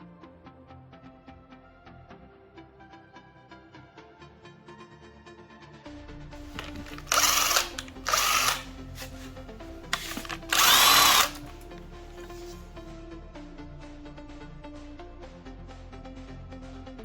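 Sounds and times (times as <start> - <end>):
background music: 0.0 - 17.0
power tool bursts: 6.4 - 11.6.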